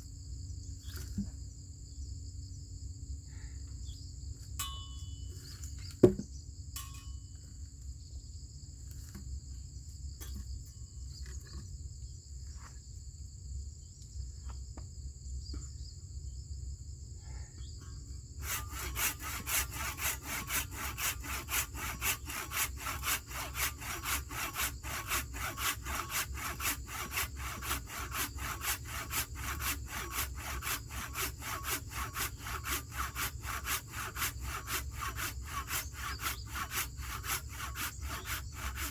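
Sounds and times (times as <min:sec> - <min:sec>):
hand saw cutting wood: 0:06.0 - 0:06.2, 0:18.3 - 0:38.9
sharp knock: 0:06.0 - 0:06.3
insect buzzing: 0:18.2 - 0:38.9.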